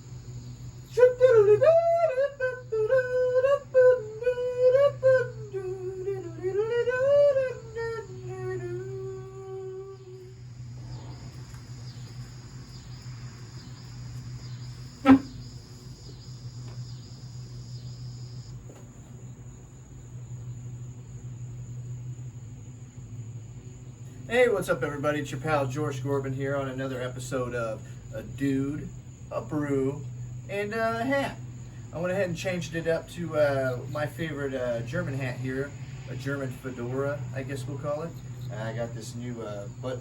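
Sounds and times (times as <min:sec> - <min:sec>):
faint repeating chirping: 0:00.0 - 0:18.6
low electrical hum: 0:00.0 - 0:40.0
man humming a tune: 0:00.9 - 0:10.4, 0:15.0 - 0:15.3.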